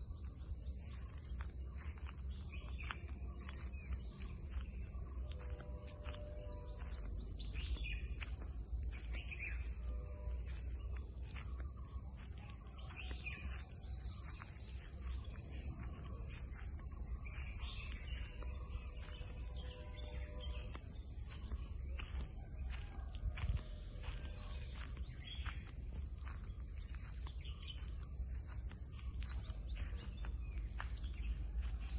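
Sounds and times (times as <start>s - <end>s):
birds chirping and whistling: 0.0s - 31.9s
low rumble: 0.0s - 31.9s.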